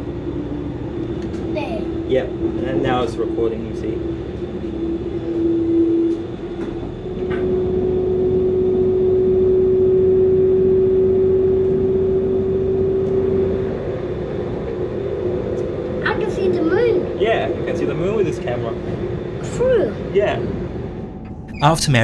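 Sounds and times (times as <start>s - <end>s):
droning whine: 2.2s - 16.0s.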